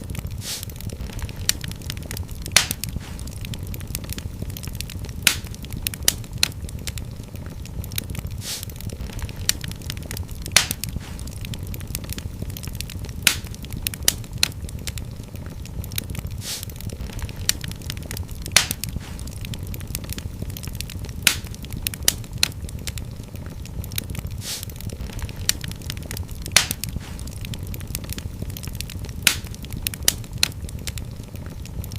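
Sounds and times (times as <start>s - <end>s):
low rumble of flames: 0.0s - 31.9s
wood fire crackling and popping: 0.0s - 31.9s
short hiss: 0.4s - 0.7s, 8.4s - 8.7s, 16.4s - 16.7s, 24.4s - 24.7s.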